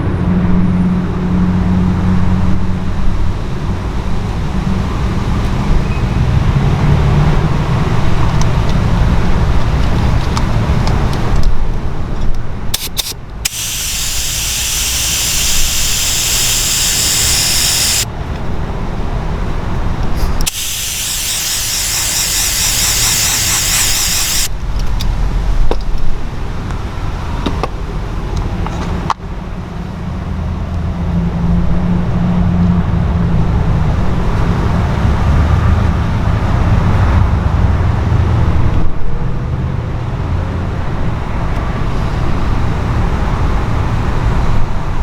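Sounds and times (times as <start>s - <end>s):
faint clicks: 12.8s - 18.1s, 20.4s - 24.5s
spray gun hissing: 12.8s - 18.1s, 20.5s - 24.5s.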